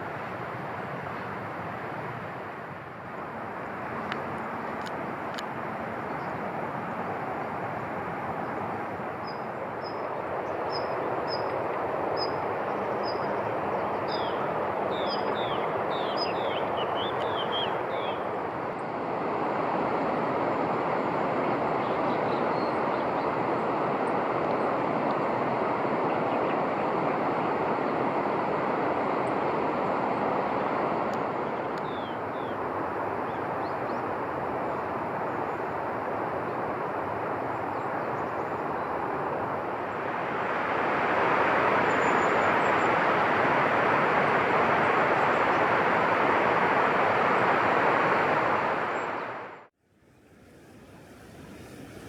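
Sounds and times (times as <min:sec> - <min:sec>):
steady rushing noise: 0:00.0 - 0:49.7
small birds chirping: 0:14.0 - 0:18.2.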